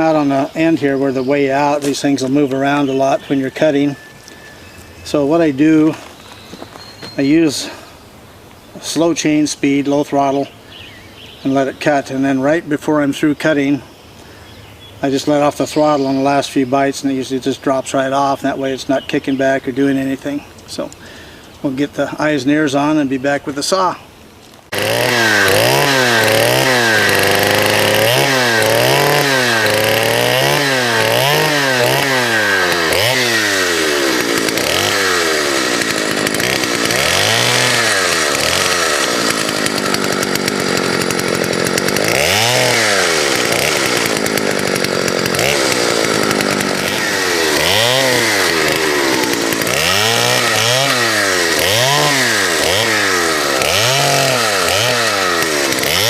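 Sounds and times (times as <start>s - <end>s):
chainsaw cutting firewood: 0.0s - 7.9s, 24.6s - 56.0s.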